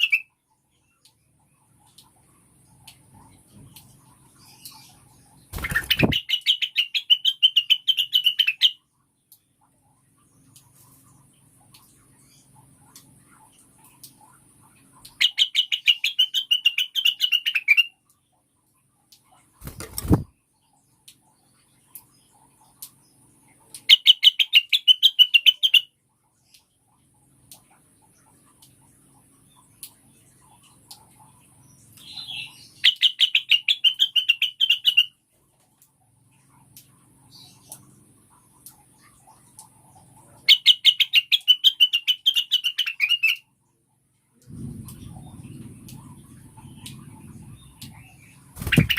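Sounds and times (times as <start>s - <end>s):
faint low hum: 0.0s - 48.9s
bird chirping sharply: 5.6s - 8.8s, 48.6s - 48.9s
low rumble: 44.4s - 48.6s.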